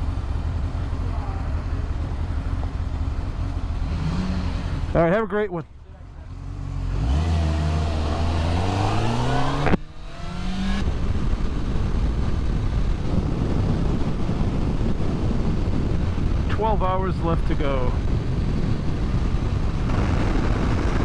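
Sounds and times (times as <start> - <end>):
motorcycle engine accelerating: 0.0 - 16.5, 18.0 - 21.0
wind rushing over microphone: 7.0 - 21.0.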